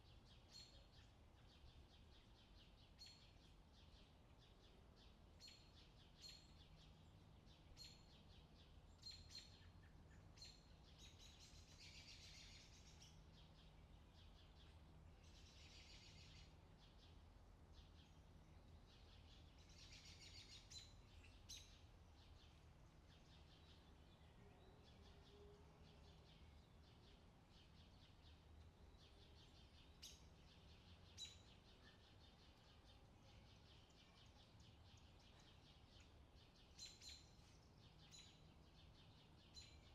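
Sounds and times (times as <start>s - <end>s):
low steady hum: 0.0s - 39.9s
small birds chirping: 0.0s - 39.9s.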